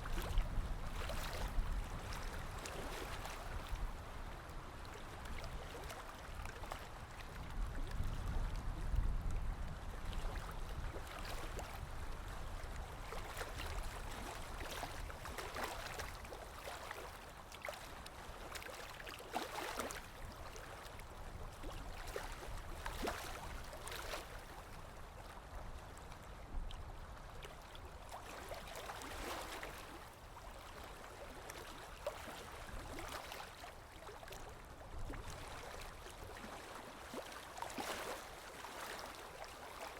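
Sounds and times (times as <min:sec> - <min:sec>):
small splashes: 0:13.2 - 0:20.8.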